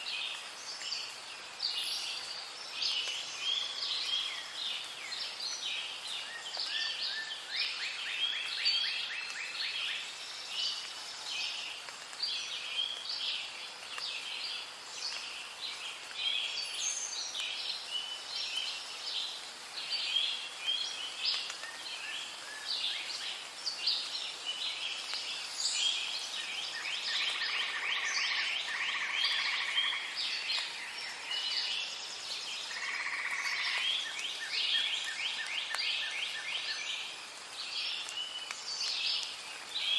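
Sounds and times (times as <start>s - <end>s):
faint steady hiss: 0.0s - 39.9s
birds calling and chirping: 20.0s - 39.9s.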